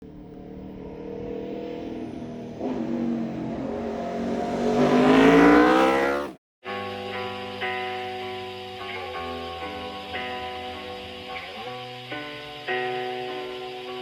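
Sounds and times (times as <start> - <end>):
motorcycle engine revving: 0.0 - 6.4
music: 6.6 - 14.0.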